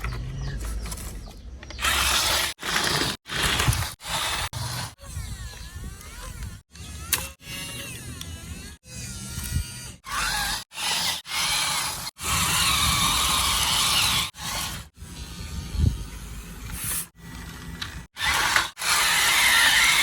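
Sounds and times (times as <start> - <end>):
plastic scraping: 0.0 - 4.8
toy electric motors whirring: 0.0 - 20.0.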